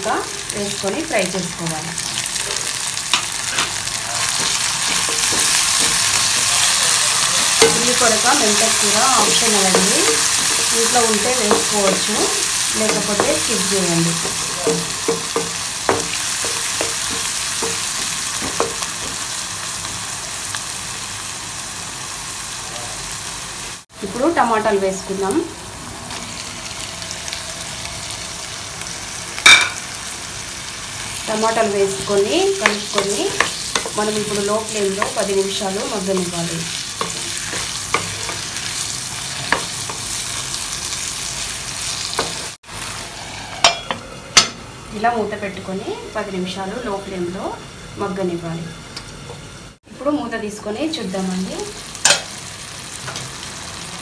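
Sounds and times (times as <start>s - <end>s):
onions sizzling in oil: 0.0s - 54.0s
wooden spatula knocking on pan: 9.4s - 10.6s, 14.1s - 19.2s.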